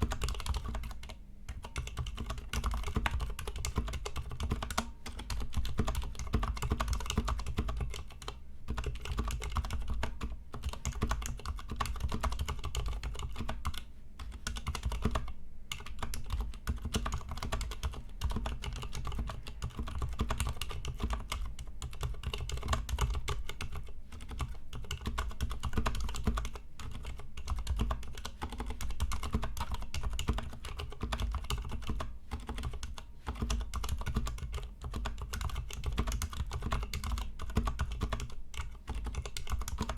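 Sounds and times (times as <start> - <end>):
muted mechanical keyboard typing: 0.0 - 39.9.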